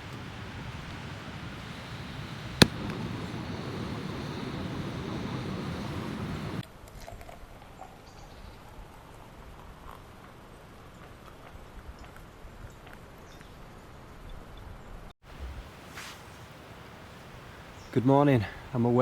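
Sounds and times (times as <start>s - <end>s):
low outdoor rushing noise: 0.0s - 6.6s, 15.3s - 19.0s.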